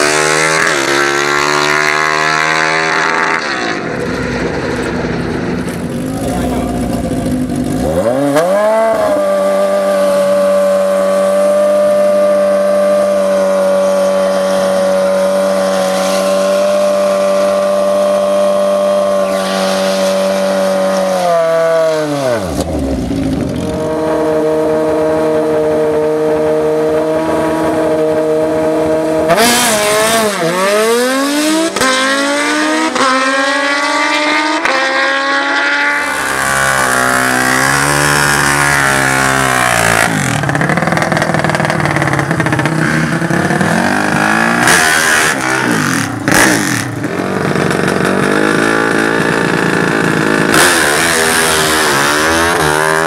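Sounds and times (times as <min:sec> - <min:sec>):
racing engine revving: 0:00.0 - 0:53.0.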